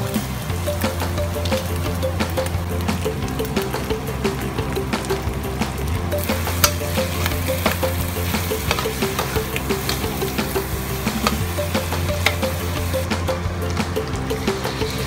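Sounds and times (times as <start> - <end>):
background music: 0.0 - 15.0
meat and peppers sizzling in a wok: 6.1 - 13.0.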